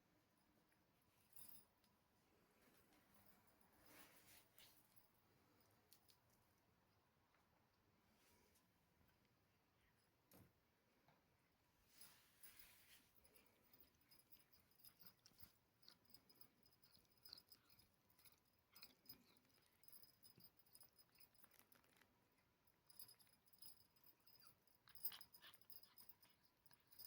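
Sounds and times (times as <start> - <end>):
cats scuffling and rustling: 2.2 - 5.6, 11.8 - 13.6.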